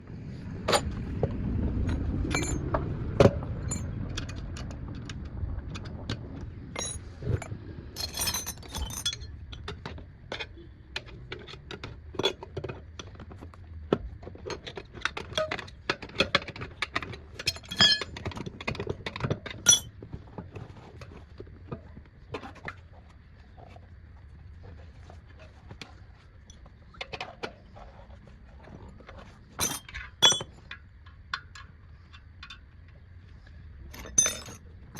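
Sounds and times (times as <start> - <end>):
low rumble: 0.0 - 9.6
metal hand tools clinking: 8.0 - 9.3, 17.4 - 18.1, 19.6 - 19.9, 29.6 - 30.6, 33.9 - 34.6.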